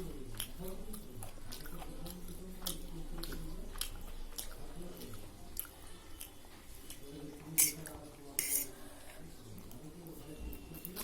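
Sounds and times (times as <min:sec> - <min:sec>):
person chewing food: 0:00.0 - 0:08.2.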